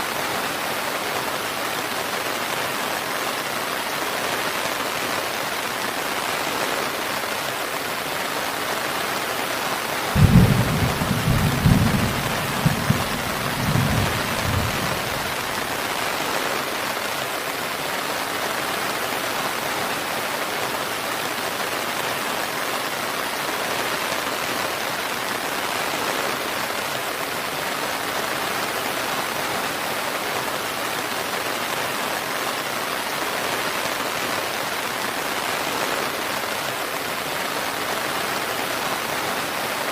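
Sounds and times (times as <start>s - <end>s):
heavy rain: 0.0s - 39.9s
thunder rumbling: 10.1s - 15.6s.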